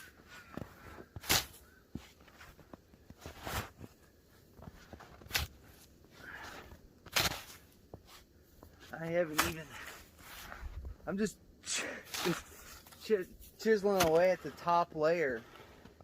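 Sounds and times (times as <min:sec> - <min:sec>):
snow shovel crunching snow: 0:00.0 - 0:04.0, 0:04.6 - 0:10.8, 0:11.7 - 0:16.0.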